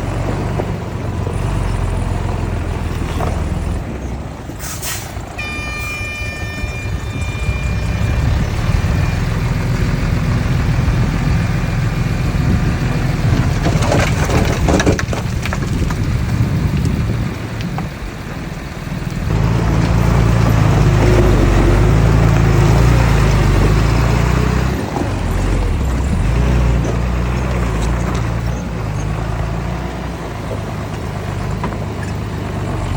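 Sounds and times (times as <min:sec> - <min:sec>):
diesel engine running: 0:00.0 - 0:32.9
rough crunching noise: 0:05.0 - 0:18.0.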